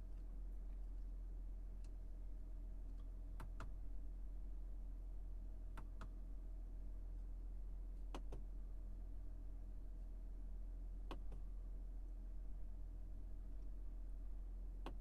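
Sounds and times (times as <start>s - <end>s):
low steady hum: 0.0s - 15.0s
soft clicks in pairs: 2.9s - 3.8s, 5.7s - 6.2s, 8.1s - 8.4s, 11.0s - 11.4s, 14.8s - 15.0s.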